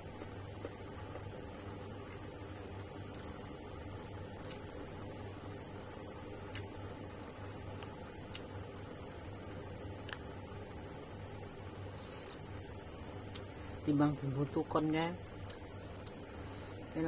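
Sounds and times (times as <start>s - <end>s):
steady low hum: 0.0s - 17.0s
quiet chewing: 0.1s - 9.0s, 11.9s - 12.7s.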